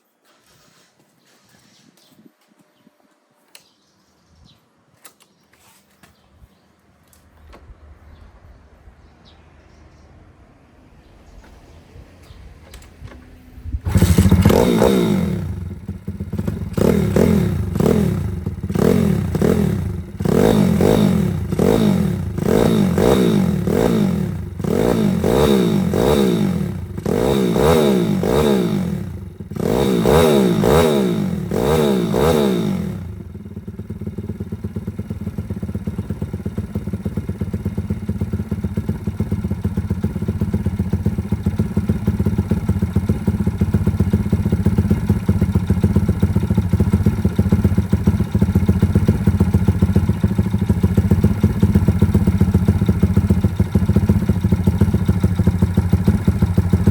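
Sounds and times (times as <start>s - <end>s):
motorbike engine revving and idling: 11.0s - 56.9s.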